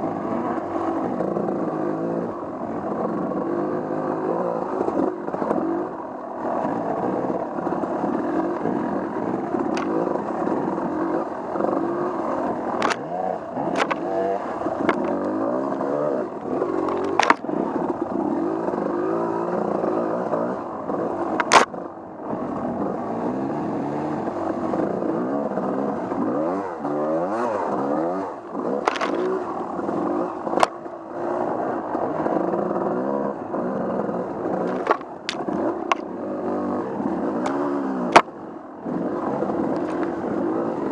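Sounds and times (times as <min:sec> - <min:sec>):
off-road vehicle engine revving: 0:00.0 - 0:40.9
sharp knocks and clicks: 0:13.7 - 0:14.1, 0:16.8 - 0:17.4, 0:21.4 - 0:21.7, 0:34.7 - 0:36.1.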